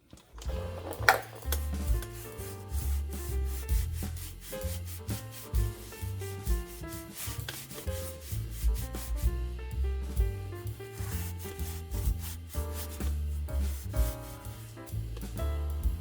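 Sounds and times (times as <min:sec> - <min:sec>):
background music with bass line: 0:00.5 - 0:16.0
abrasive pad scrubbing metal: 0:01.3 - 0:09.2, 0:10.9 - 0:14.7.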